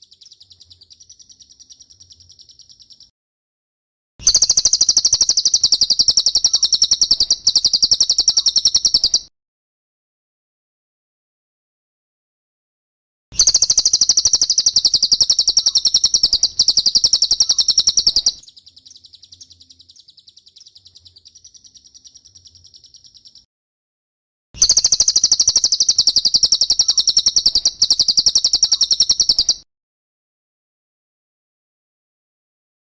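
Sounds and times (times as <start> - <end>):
high-pitched trilling bird chatter: 0.0 - 3.1, 4.2 - 9.3, 13.4 - 23.5, 24.6 - 29.6.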